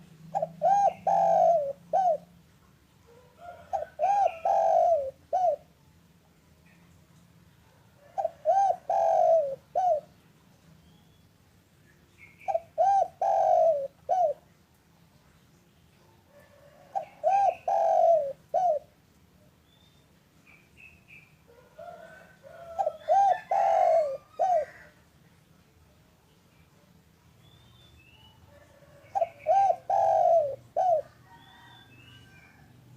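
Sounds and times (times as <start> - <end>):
dove cooing: 0.0 - 2.4, 3.0 - 5.8, 8.0 - 10.2, 12.4 - 14.5, 16.3 - 19.0, 21.5 - 25.0, 28.5 - 32.7
small birds chirping: 8.2 - 16.2, 19.6 - 21.4, 22.6 - 32.6.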